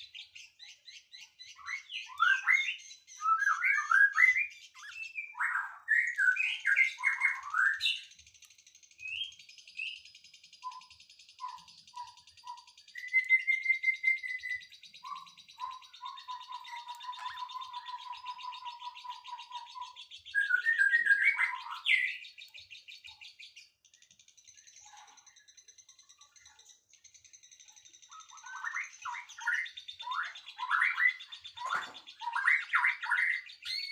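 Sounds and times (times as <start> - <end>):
loud bird chirps: 0.0 - 33.9
low bird whistles: 10.6 - 22.4, 28.3 - 33.9.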